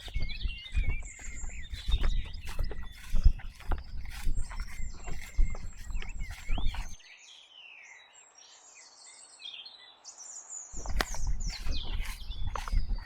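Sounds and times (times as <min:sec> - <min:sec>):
birds chirping and singing: 0:00.0 - 0:07.8, 0:10.8 - 0:13.0.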